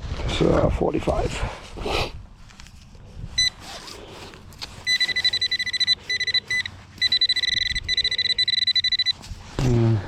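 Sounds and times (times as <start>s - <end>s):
metal detector beeping: 3.4s - 3.6s, 4.8s - 9.4s.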